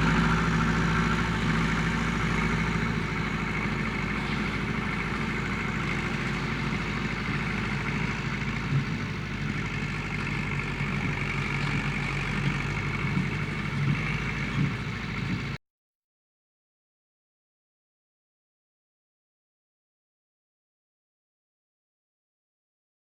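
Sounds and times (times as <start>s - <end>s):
tractor engine running: 0.0s - 15.6s.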